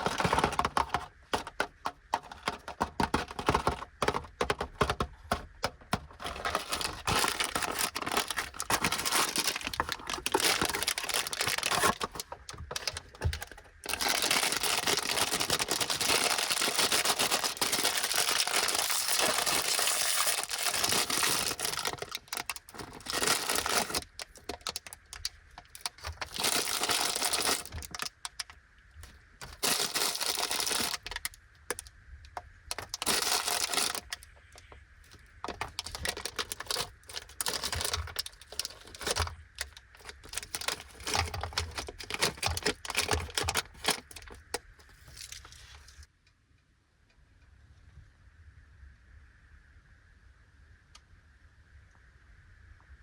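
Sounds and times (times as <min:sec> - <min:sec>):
plastic packaging crinkling: 0:00.0 - 0:31.9, 0:32.7 - 0:46.1.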